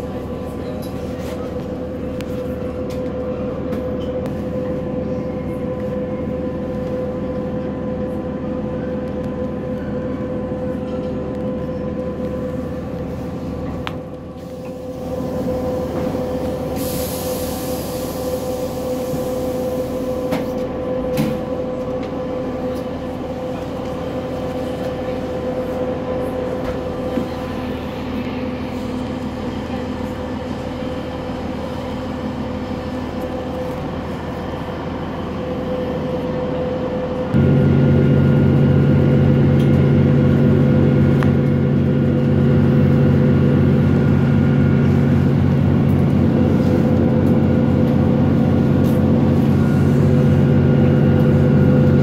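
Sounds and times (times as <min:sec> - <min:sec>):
train drone with whining tone: 0:00.0 - 0:52.0
hiss: 0:16.8 - 0:19.9.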